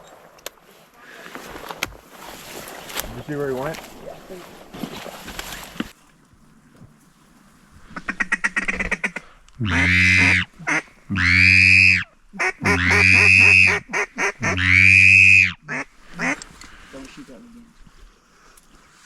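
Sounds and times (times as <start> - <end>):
duck call chattering notes: 8.0 - 16.4
duck call long drawn-out calls: 8.0 - 16.4.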